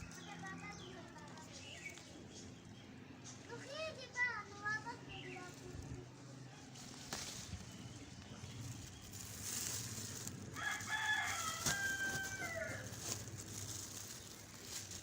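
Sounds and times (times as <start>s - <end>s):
rooster crowing: 10.5s - 13.0s.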